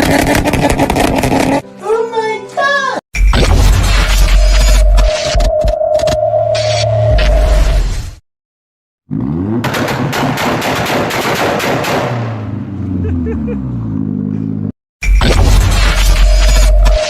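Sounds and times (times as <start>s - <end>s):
car exhaust revving and popping: 0.0s - 1.6s, 9.1s - 12.6s.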